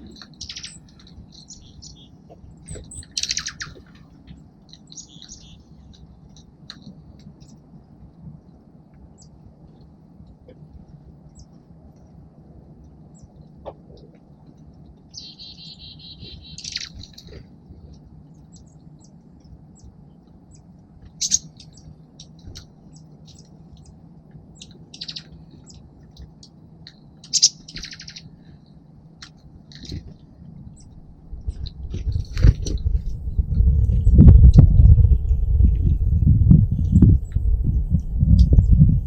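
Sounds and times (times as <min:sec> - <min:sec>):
songbirds calling: 0:00.0 - 0:39.0
low rumble: 0:29.5 - 0:39.0.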